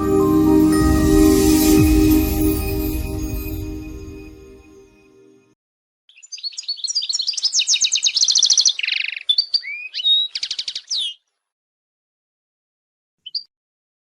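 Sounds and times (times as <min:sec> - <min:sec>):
goldfinch twittering song: 0:06.1 - 0:11.2.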